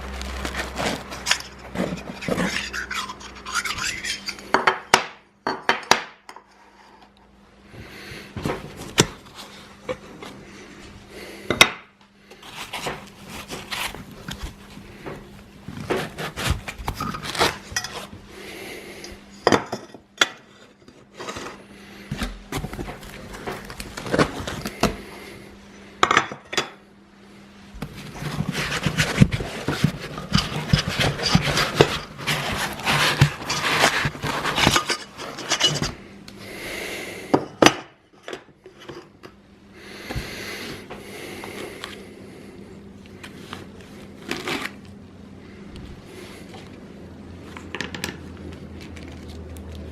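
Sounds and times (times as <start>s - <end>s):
hard parts clicking and clinking: 0.2s - 6.5s, 27.9s - 36.0s
handling noise: 27.8s - 36.1s.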